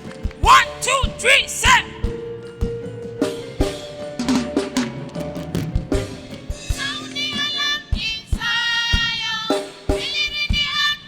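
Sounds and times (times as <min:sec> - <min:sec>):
band drum beat: 0:00.0 - 0:11.0.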